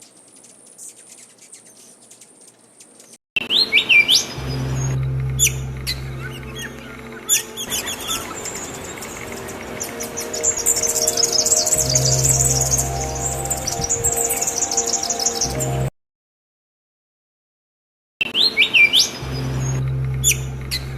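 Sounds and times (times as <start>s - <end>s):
small birds chirping: 0.0s - 15.9s
steady low hum: 4.4s - 13.8s, 19.2s - 20.9s.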